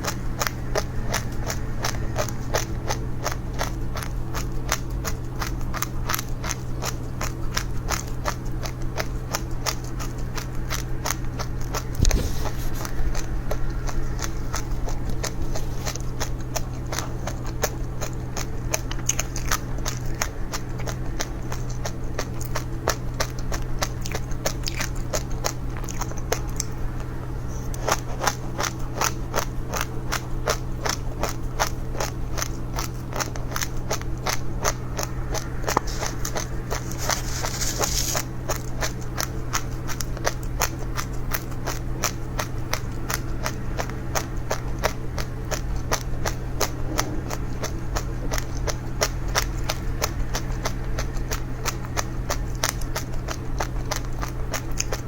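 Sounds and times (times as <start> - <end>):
dry seeds crunching: 0.0 - 55.0
low hum: 0.0 - 55.0.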